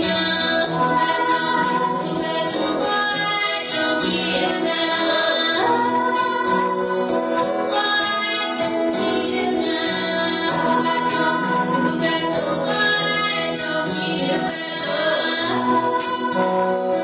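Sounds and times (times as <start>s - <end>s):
person singing long held notes: 0.0s - 17.0s.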